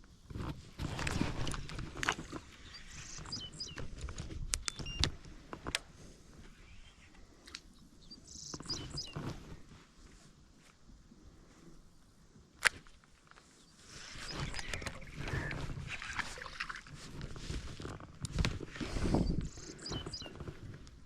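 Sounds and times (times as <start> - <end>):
gear rustling and scraping: 0.3 - 4.4, 13.3 - 21.0
birds chirping: 2.3 - 4.0, 6.6 - 9.3, 13.6 - 16.6, 19.1 - 20.5
sharp clicks: 3.2 - 5.9.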